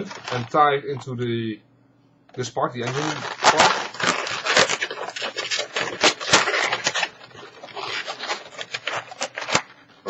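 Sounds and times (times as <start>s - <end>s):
balloons squeaking and rubbing: 0.0s - 0.6s, 2.8s - 9.7s.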